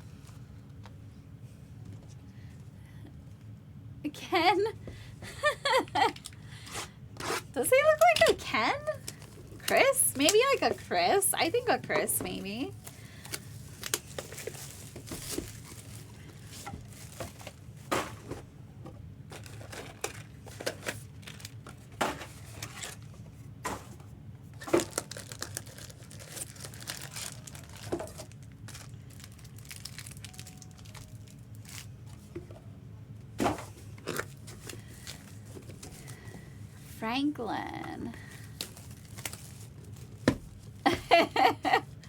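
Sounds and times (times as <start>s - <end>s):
packaging tearing and crinkling: 12.8s - 17.6s, 19.3s - 23.1s, 24.6s - 32.2s, 38.5s - 40.3s.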